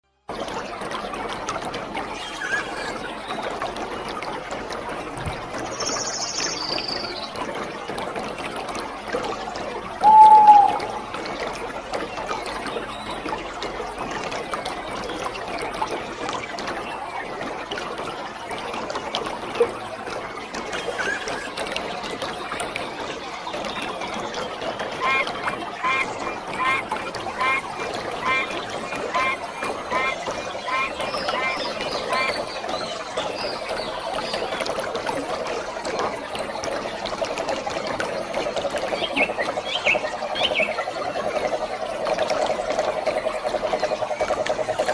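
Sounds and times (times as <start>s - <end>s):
fast trilling drone: 2.1s - 3.1s, 20.7s - 21.6s
bird chirps: 2.2s - 3.0s, 20.7s - 21.5s.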